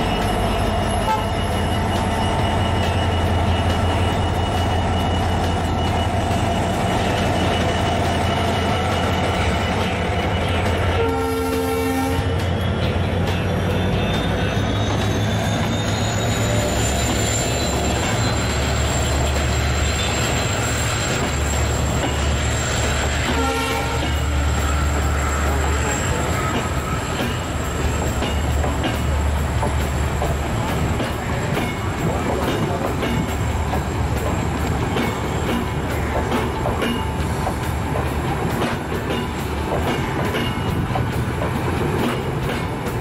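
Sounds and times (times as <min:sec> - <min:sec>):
diesel locomotive engine rumble: 0:00.0 - 0:43.0
train wheels clacking over rail joints: 0:00.0 - 0:43.0
short squeal: 0:13.5 - 0:28.5.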